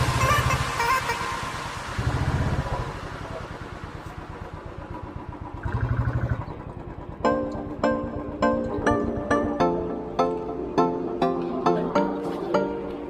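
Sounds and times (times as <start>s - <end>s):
motorcycle engine revving: 0.0s - 9.5s.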